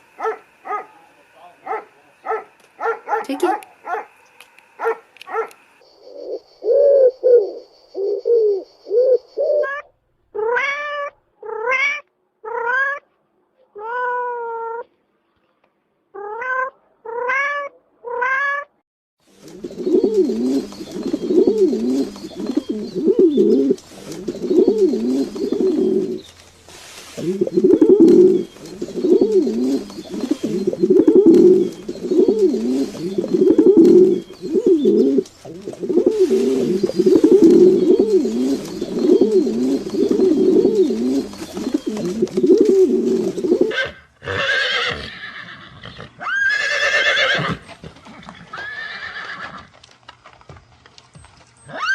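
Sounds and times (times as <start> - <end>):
pigeons cooing: 0.0 - 9.8, 19.3 - 26.4, 27.0 - 49.5
cat meowing: 10.4 - 13.0, 16.2 - 18.7.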